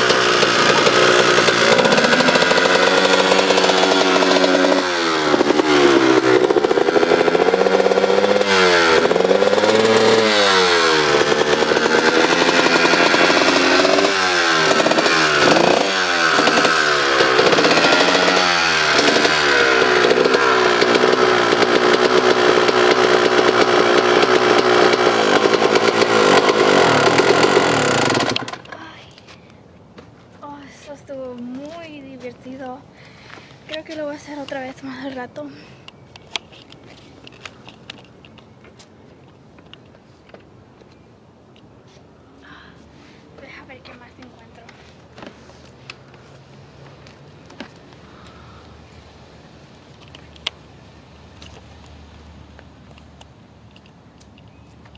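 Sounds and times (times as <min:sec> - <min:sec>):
dirt bike engine revving: 0:00.0 - 0:28.8.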